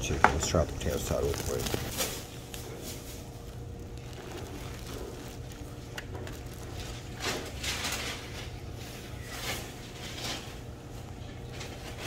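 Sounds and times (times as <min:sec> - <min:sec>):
steady low hum: 0:00.0 - 0:12.0
soft chewing mouth sounds: 0:02.5 - 0:07.2.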